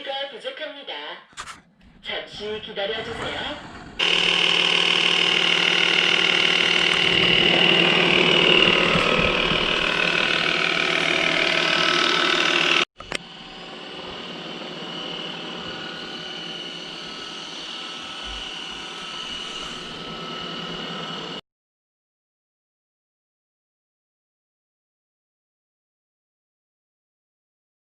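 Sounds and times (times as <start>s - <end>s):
robot vacuum cleaner humming: 1.8s - 21.4s
click: 13.0s - 13.2s.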